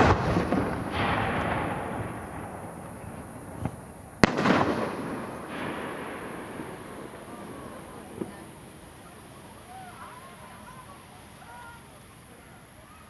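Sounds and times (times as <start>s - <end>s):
firework bang: 0.0s - 10.8s.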